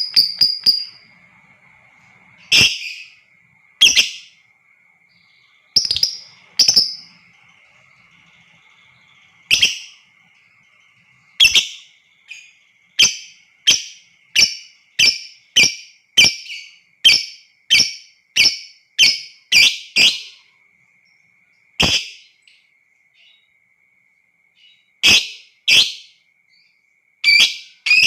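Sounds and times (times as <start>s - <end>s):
lovebird shrill calls: 0.0s - 1.2s, 2.4s - 3.2s, 3.8s - 4.4s, 5.2s - 20.4s, 27.2s - 28.0s.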